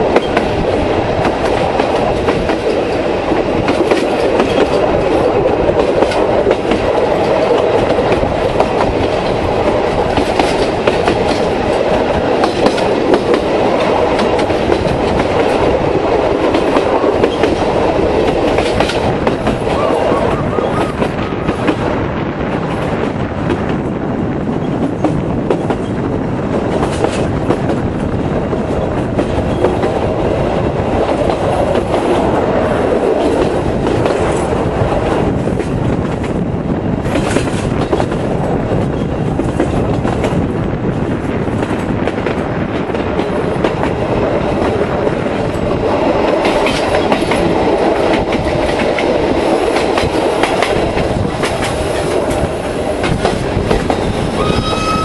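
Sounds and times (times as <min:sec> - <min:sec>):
wheels clicking over rails: 0:00.0 - 0:21.9, 0:41.0 - 0:55.0
train carriage rumbling on track: 0:00.0 - 0:55.0.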